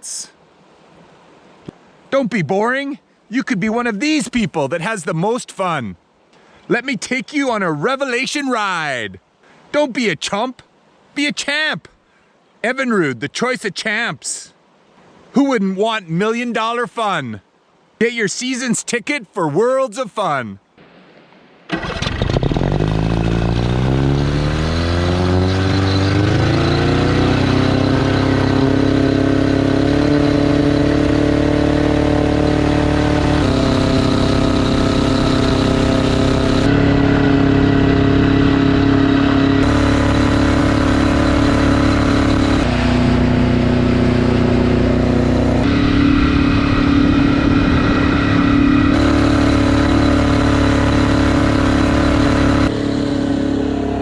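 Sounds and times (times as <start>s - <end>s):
outboard motor revving: 21.7s - 54.0s.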